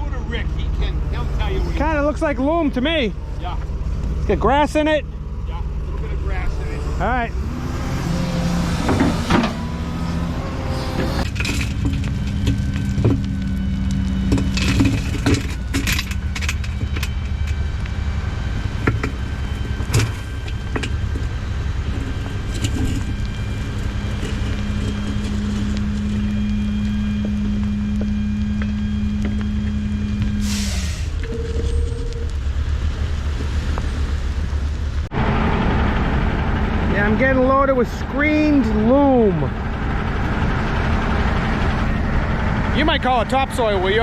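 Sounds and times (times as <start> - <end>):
diesel engine idling: 0.0 - 44.0
metal clanks and knocks: 8.8 - 10.0, 11.0 - 13.4, 14.2 - 17.8, 18.7 - 26.3
air hiss: 30.4 - 31.2.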